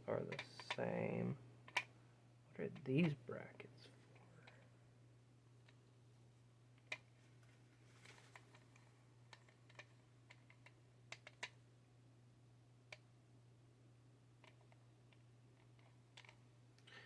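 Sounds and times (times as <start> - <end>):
steady low hum: 0.0 - 14.4
small plastic parts clicking: 1.6 - 1.9, 8.0 - 11.6, 14.4 - 16.9.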